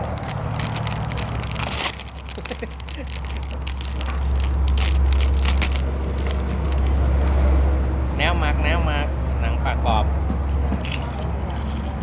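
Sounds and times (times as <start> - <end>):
crispy fish skin crunching: 0.0 - 7.6.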